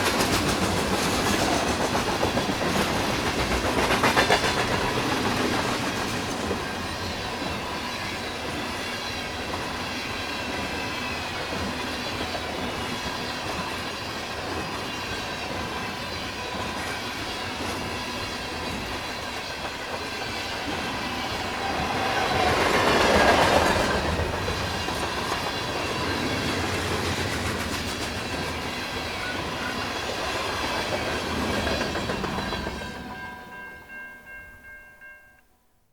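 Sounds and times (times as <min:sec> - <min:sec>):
wheels clicking over rail joints: 0:00.0 - 0:06.8, 0:16.6 - 0:33.0
freight train rolling past: 0:00.0 - 0:35.2
high squealing of train wheels: 0:00.0 - 0:35.2.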